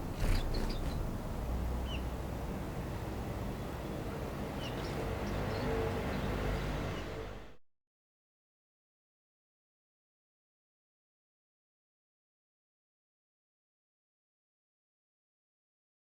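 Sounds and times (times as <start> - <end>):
low outdoor rumble: 0.0 - 7.6
small bird call notes: 0.2 - 1.0.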